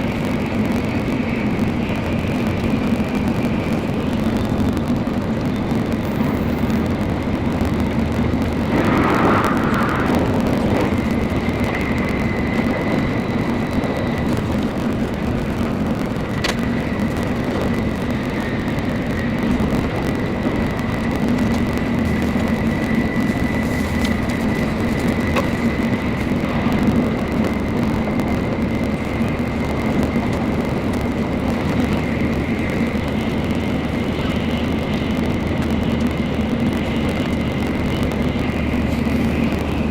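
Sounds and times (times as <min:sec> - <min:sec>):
train running at speed: 0:00.0 - 0:39.9
faint high whine: 0:08.3 - 0:14.7
brief louder rush: 0:08.5 - 0:12.2.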